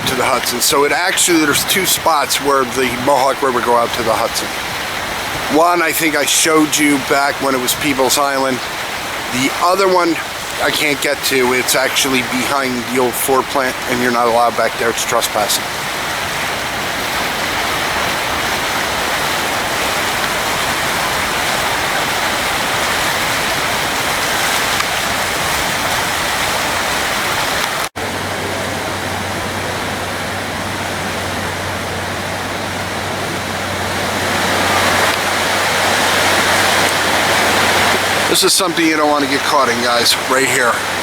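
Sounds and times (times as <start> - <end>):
rushing floodwater: 0.0 - 41.0.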